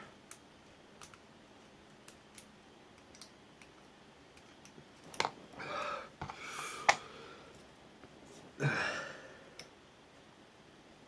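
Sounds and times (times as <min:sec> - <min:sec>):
heavy breaths: 0:05.6 - 0:07.6.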